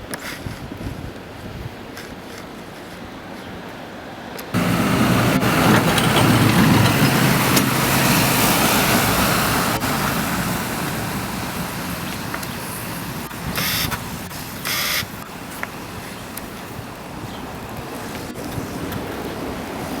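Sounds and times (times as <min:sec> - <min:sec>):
car engine and tyres: 0:00.0 - 0:20.0.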